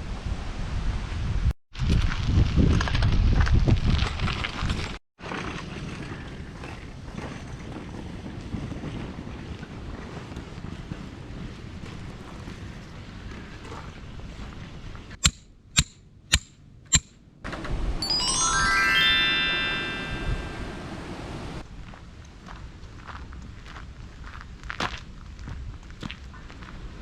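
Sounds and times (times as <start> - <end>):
outdoor wind: 0.0 - 18.0, 20.6 - 27.0
rising chime-like tones: 18.0 - 21.6.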